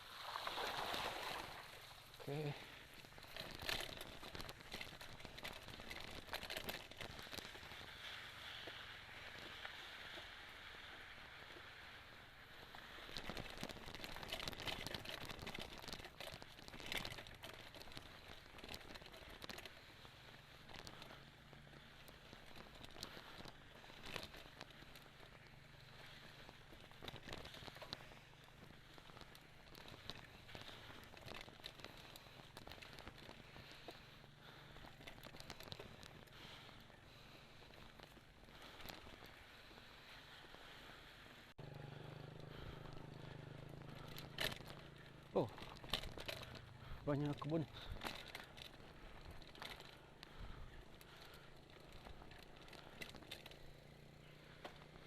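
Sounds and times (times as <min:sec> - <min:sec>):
mountain bike rattling on dirt trail: 0:00.0 - 0:55.0
bike tyres rolling hiss: 0:06.9 - 0:14.3, 0:19.7 - 0:49.4.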